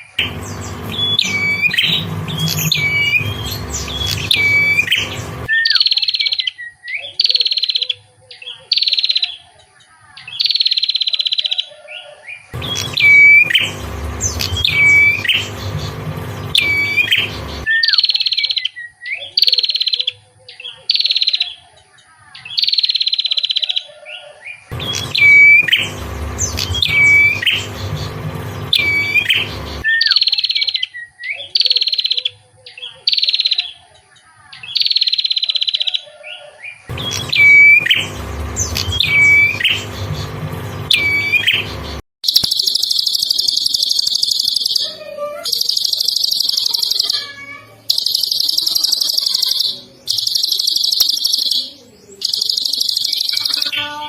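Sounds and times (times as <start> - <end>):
songbird buzzy calls: 0.0 - 7.9, 10.4 - 20.1, 22.6 - 32.1, 36.4 - 54.0
bird buzzing trill: 0.2 - 5.5, 12.6 - 17.7, 24.7 - 29.8, 36.9 - 49.4, 52.8 - 54.0
bird whistled notes: 0.5 - 7.8, 12.0 - 15.5, 16.6 - 18.4, 24.8 - 27.7, 37.0 - 38.1, 40.9 - 41.7, 42.3 - 53.9.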